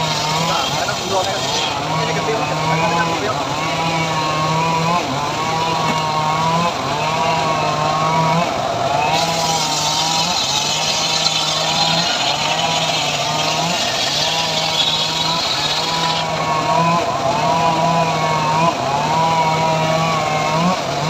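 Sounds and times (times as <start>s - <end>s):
sawmill engine running: 0.0s - 21.0s
saw blade cutting wood hiss: 9.1s - 16.3s.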